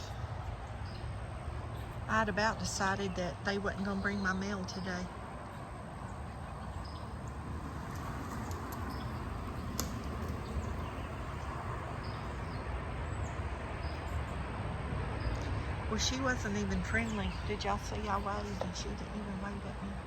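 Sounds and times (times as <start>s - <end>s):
vehicle rumbling past: 0.0s - 20.0s.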